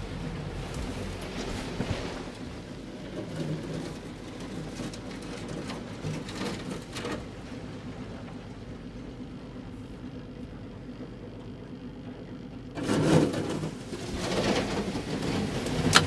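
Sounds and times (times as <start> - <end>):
short crackles: 0.0 - 7.7
outboard motor humming: 0.0 - 16.0.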